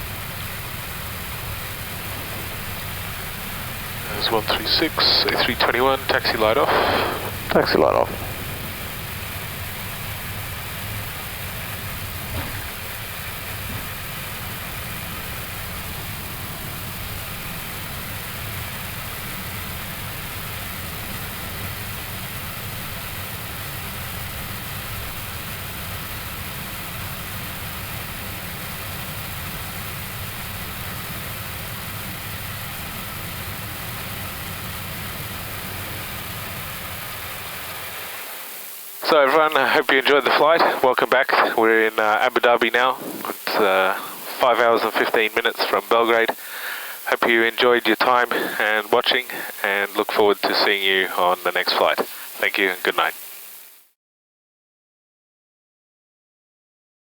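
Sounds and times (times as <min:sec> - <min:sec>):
aircraft cabin rushing hiss and rumble: 0:00.0 - 0:18.1, 0:39.0 - 0:53.1.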